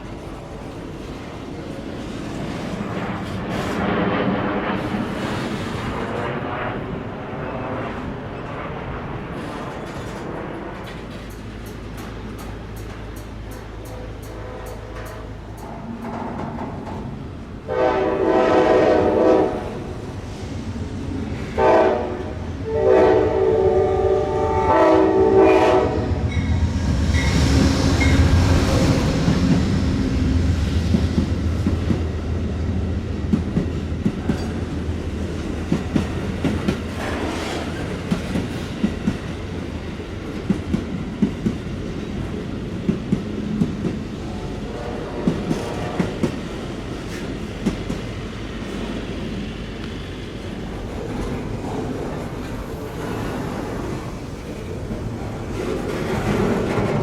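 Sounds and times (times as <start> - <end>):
train wheels clicking on rails: 0.0 - 6.4, 8.3 - 17.6, 25.6 - 57.0
locomotive air horn: 17.7 - 19.7, 21.6 - 26.3, 44.6 - 46.3.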